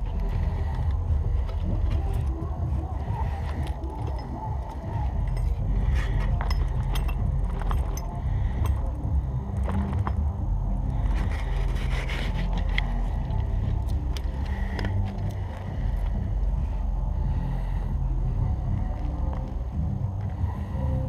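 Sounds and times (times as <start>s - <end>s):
steady low rumble: 0.0s - 21.0s
coffee kit clinking and rattling: 3.1s - 9.0s, 9.6s - 10.3s.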